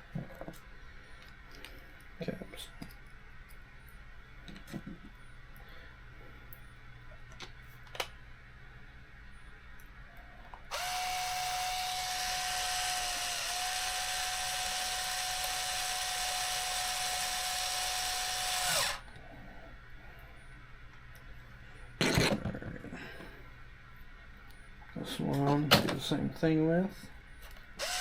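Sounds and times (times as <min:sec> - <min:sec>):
drill motor whine: 0:10.7 - 0:19.0, 0:27.8 - 0:28.0.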